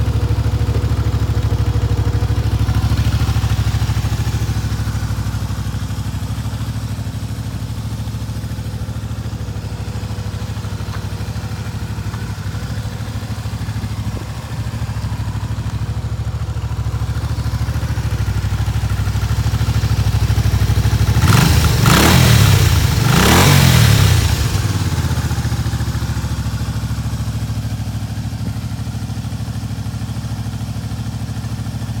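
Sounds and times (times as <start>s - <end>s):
motorcycle engine idling: 0.0s - 32.0s
motorcycle throttle blips: 2.6s - 19.2s.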